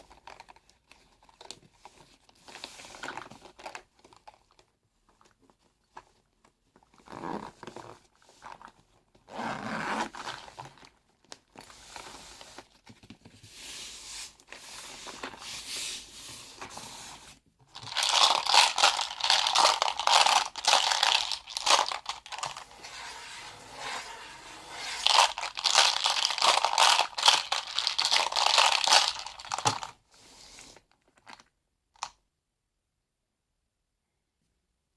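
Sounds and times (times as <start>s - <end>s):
crinkling and crunching: 17.6s - 30.0s, 30.7s - 32.1s.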